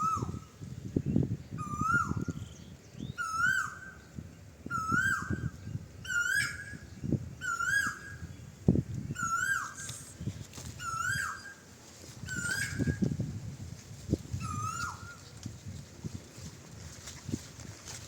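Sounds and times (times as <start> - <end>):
bird calling: 0.0 - 0.6, 1.6 - 4.1, 4.7 - 8.3, 9.1 - 13.2, 14.4 - 15.4.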